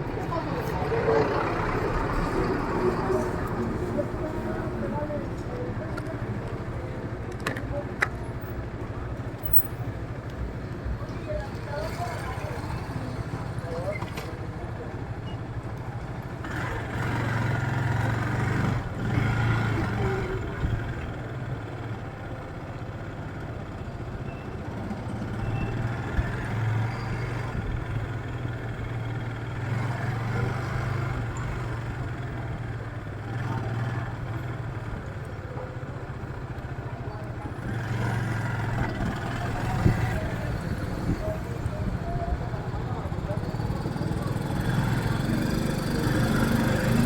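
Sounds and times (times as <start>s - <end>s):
street traffic: 0.0s - 47.0s
motorcycle engine running: 26.4s - 47.0s.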